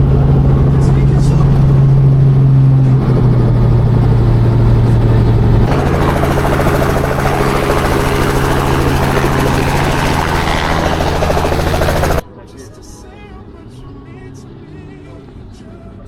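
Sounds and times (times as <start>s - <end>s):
helicopter engine and rotor drone: 0.0s - 12.2s.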